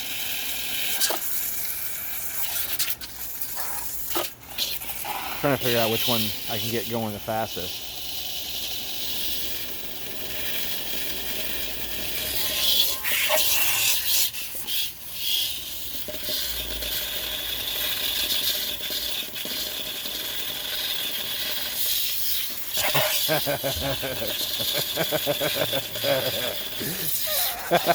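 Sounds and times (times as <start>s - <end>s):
pressure washer jet hissing: 5.0s - 27.9s.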